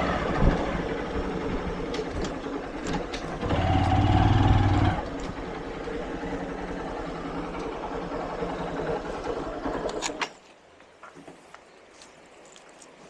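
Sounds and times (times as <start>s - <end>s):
small vehicle engine running: 0.0s - 10.2s.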